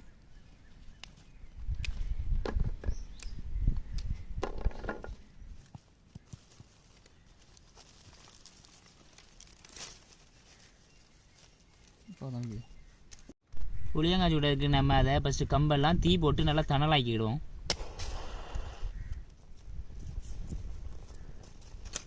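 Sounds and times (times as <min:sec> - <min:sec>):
dry leaves and twigs rustling: 0:00.0 - 0:13.4, 0:19.0 - 0:22.0.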